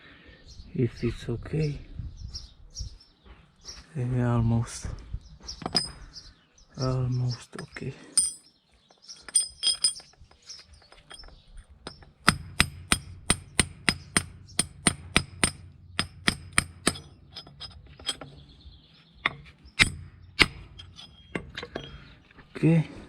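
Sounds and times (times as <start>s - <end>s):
hammer striking metal: 11.9s - 17.2s.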